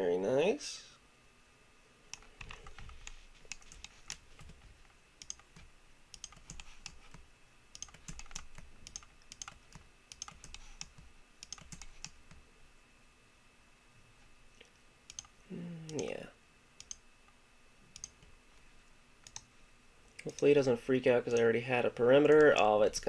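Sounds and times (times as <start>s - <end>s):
computer keyboard clicks: 2.1s - 12.4s, 15.1s - 15.3s, 16.8s - 17.0s, 18.0s - 18.3s, 19.2s - 19.5s.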